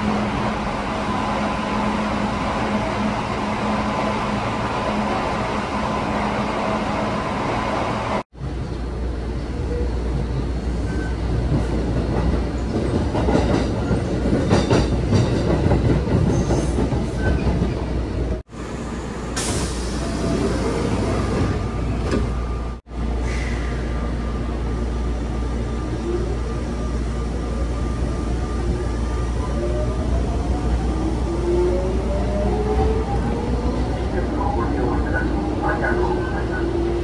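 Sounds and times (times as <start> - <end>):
train wheel rumble and clatter: 10.1 - 18.4.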